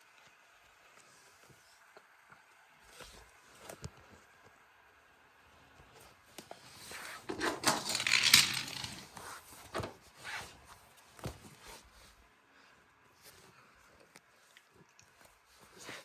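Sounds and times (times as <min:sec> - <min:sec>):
small hard objects clattering: 0:07.2 - 0:09.2.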